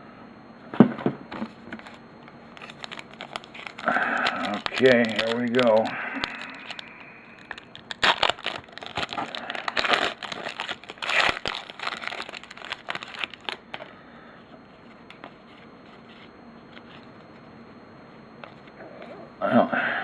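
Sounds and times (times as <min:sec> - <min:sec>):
faint handling ticks: 0:02.6 - 0:07.6
plastic wrapper tearing and crinkling: 0:02.6 - 0:13.9.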